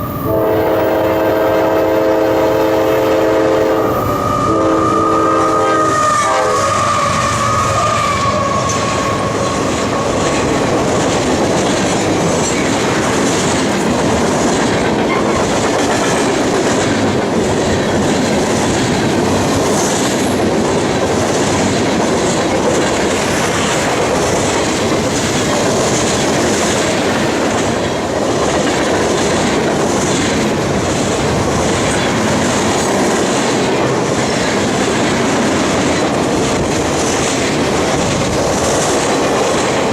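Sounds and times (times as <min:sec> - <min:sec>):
train wheels clickety-clack: 0:00.0 - 0:39.9
train horn: 0:00.1 - 0:09.9.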